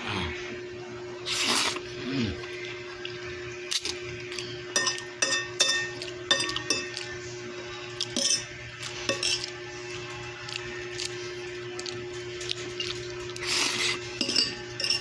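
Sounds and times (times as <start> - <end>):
cutlery clinking on a plate: 3.7 - 7.2, 8.0 - 9.6, 11.8 - 15.0.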